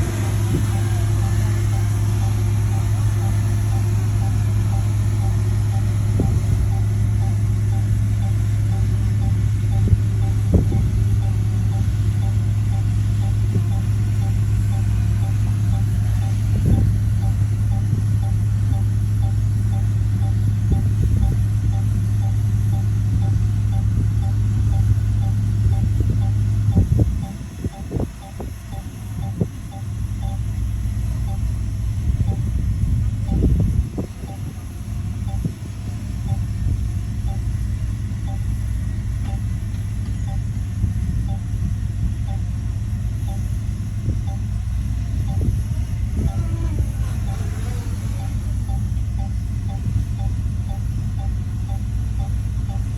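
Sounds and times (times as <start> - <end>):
bulldozer diesel engine running: 0.0 - 52.9
faint short beeps: 0.4 - 30.6, 31.2 - 31.5, 32.2 - 32.5, 33.3 - 33.6, 34.2 - 34.6, 35.2 - 37.6, 38.2 - 38.6, 39.2 - 40.6, 43.2 - 43.6, 44.2 - 52.9
faint short blips: 0.4 - 30.6, 31.2 - 31.5, 33.2 - 33.6, 34.2 - 34.6, 39.2 - 40.6, 43.2 - 43.6, 44.2 - 52.9.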